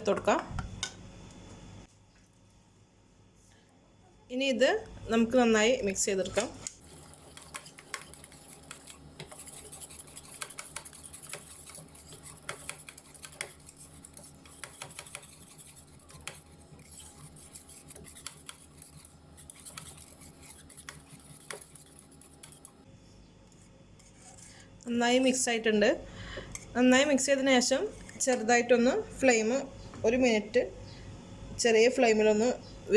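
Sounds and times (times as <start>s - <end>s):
utensil stirring in a pan: 5.1s - 22.9s, 23.6s - 24.6s.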